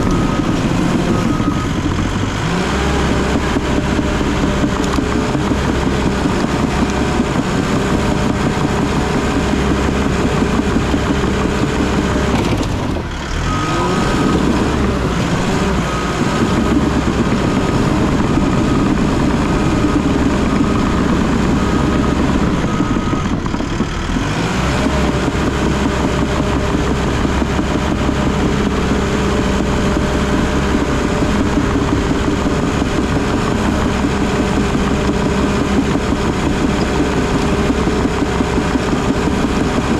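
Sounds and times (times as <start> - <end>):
backup alarm beeping: 0.0 - 1.9
heavy machinery diesel engine running: 0.0 - 39.9.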